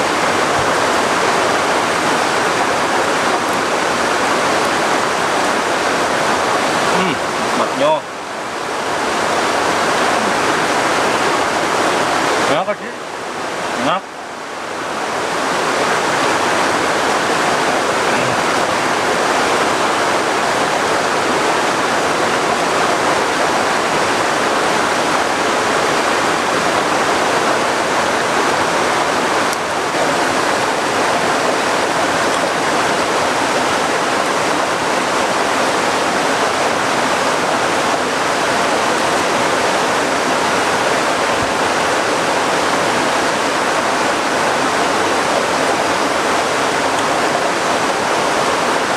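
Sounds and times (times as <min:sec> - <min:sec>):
water rushing: 0:00.0 - 0:48.9.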